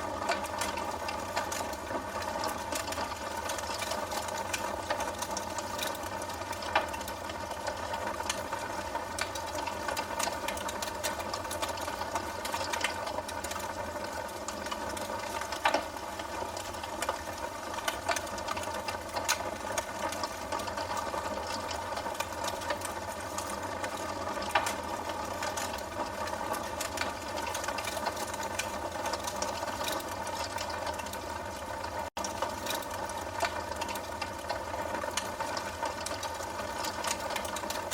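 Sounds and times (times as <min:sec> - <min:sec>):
wood fire crackling: 0:00.0 - 0:37.9.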